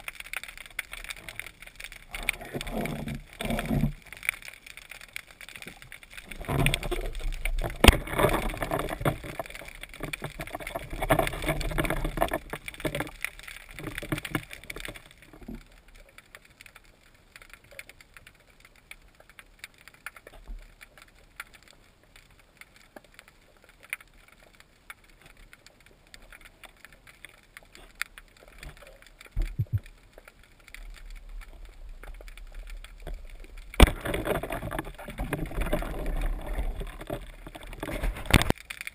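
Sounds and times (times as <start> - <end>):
water sloshing and splashing: 0.0 - 15.9, 25.1 - 38.9
faint clicks: 0.0 - 38.9
underwater sound: 0.0 - 38.9.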